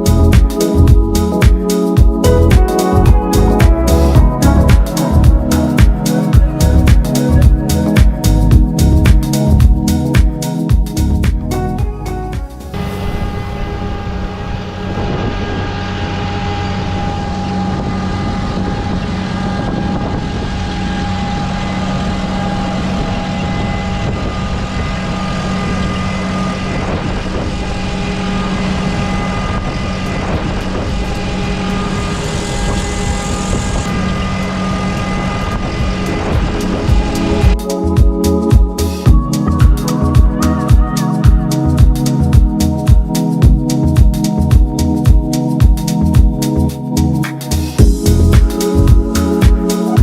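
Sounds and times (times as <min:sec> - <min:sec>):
machine motor droning with whine: 0:12.7 - 0:37.6.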